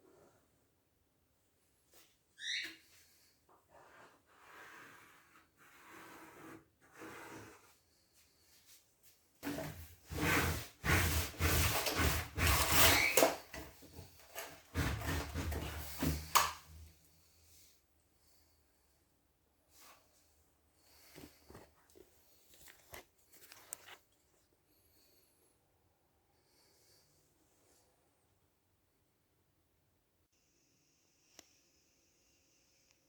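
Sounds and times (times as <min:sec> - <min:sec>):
short falling squeak: 0:02.4 - 0:02.8
rubbing and scraping strokes: 0:03.7 - 0:08.8, 0:09.4 - 0:16.4.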